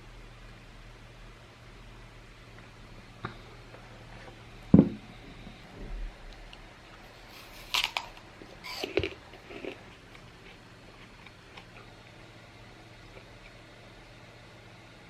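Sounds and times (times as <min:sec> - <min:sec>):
dull thump: 0:04.7 - 0:05.0.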